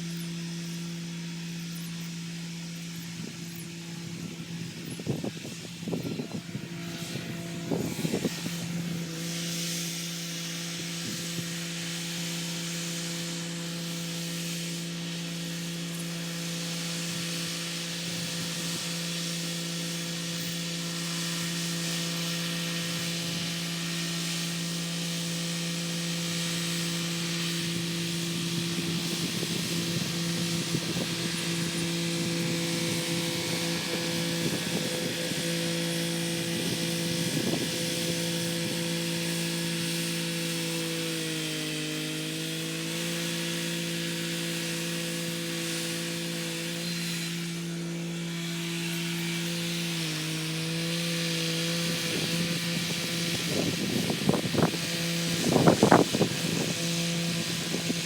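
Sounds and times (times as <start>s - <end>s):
tractor diesel engine running: 26.3s - 40.4s.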